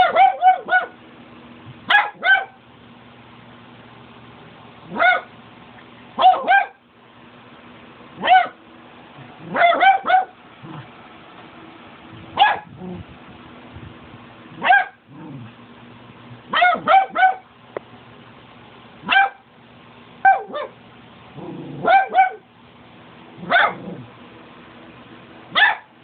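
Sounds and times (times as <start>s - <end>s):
dog barking: 0.0s - 1.0s, 1.9s - 2.6s, 4.9s - 5.3s, 6.2s - 6.8s, 8.2s - 8.6s, 9.4s - 10.8s, 12.4s - 12.7s, 14.6s - 15.0s, 16.5s - 17.5s, 19.0s - 19.4s, 20.2s - 20.8s, 21.7s - 22.5s, 23.4s - 24.0s, 25.5s - 25.9s.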